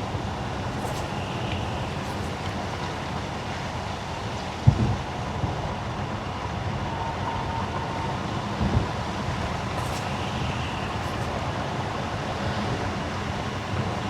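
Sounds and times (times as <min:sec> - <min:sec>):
tyre and road noise: 0:00.0 - 0:05.0, 0:08.0 - 0:14.0.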